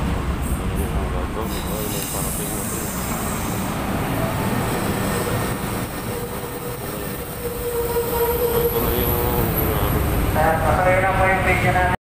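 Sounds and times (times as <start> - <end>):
wheels rumbling on rail: 0.0 - 12.0
train wheel squeal: 6.1 - 9.9.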